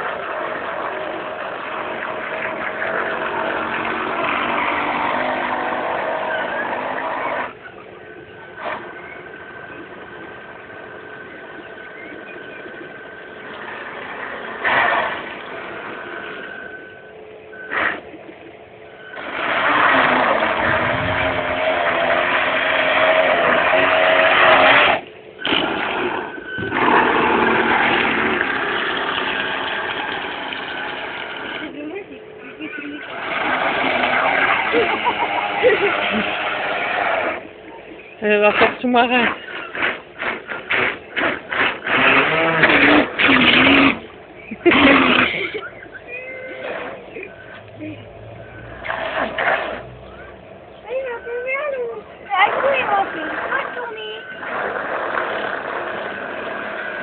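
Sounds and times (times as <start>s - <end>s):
engine running loud: 0.0s - 18.4s, 19.0s - 38.0s
high whine: 0.0s - 57.0s.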